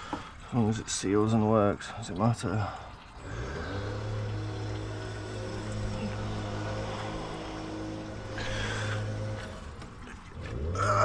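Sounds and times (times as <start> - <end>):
motor hum: 2.9 - 11.0.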